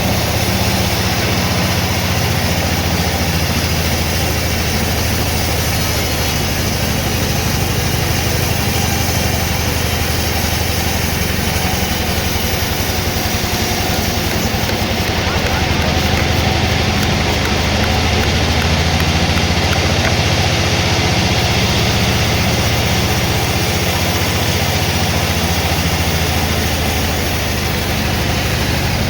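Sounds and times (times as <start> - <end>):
engine running steadily: 0.0 - 29.0.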